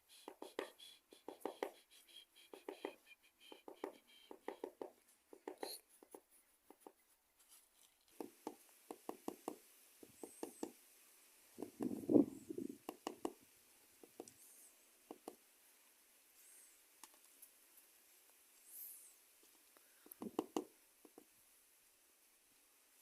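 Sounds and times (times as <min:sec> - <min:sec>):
light knocks and taps: 0:02.5 - 0:07.0, 0:20.0 - 0:21.3.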